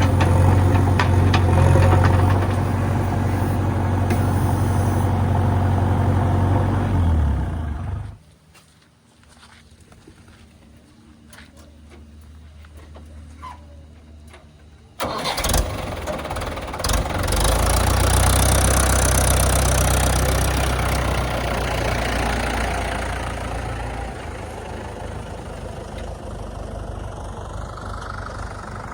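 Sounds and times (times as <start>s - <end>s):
diesel engine starting and idling: 0.0s - 8.2s, 14.8s - 28.9s.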